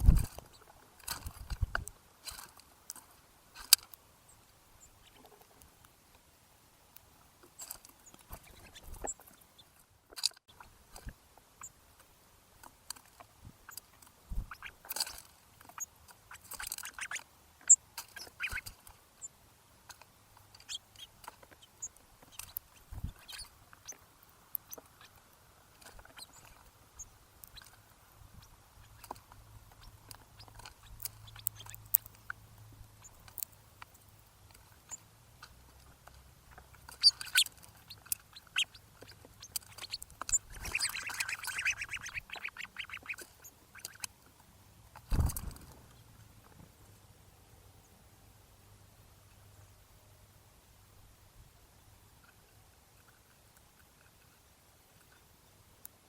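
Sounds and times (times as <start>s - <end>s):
birds pecking and cracking seed: 0.0s - 46.9s, 52.1s - 56.0s
high bird chirps: 15.8s - 18.7s, 20.6s - 24.0s, 36.9s - 44.1s.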